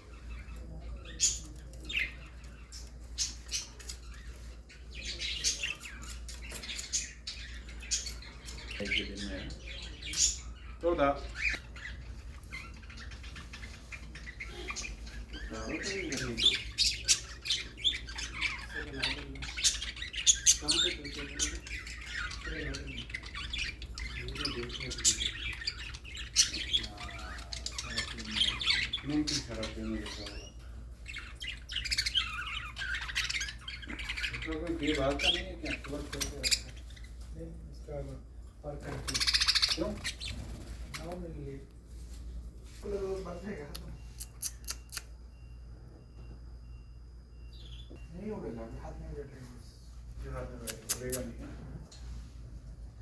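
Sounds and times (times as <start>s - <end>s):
steady low hum: 0.0s - 53.0s
parrot squawking: 5.0s - 37.2s, 38.9s - 41.1s.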